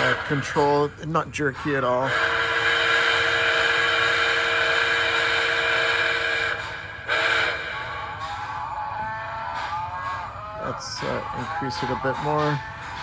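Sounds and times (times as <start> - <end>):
electronic steam whistle blasts: 0.0 - 1.1, 2.0 - 9.9.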